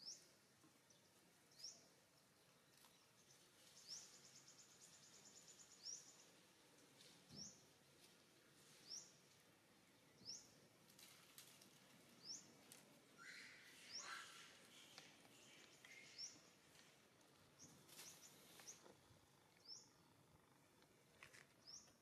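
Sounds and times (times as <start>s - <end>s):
high upward bird chirp: 13.2s - 16.4s
lower bird call: 13.2s - 16.4s.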